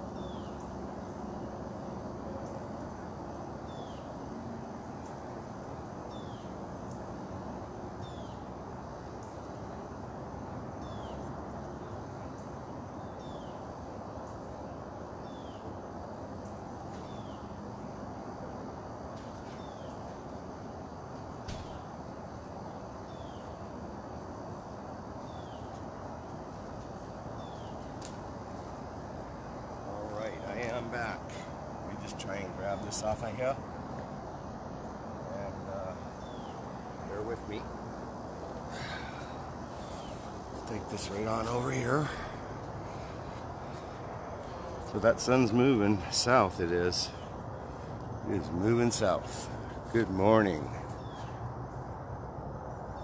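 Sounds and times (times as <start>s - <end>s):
distant traffic rumble: 0.0s - 53.0s
bird chipping: 36.0s - 37.6s, 38.7s - 43.8s.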